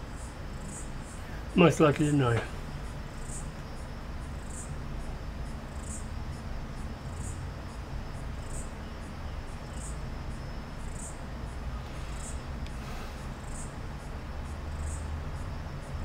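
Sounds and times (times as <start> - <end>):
high insect-like chirps: 0.0 - 16.0
steady low hum: 0.0 - 16.0.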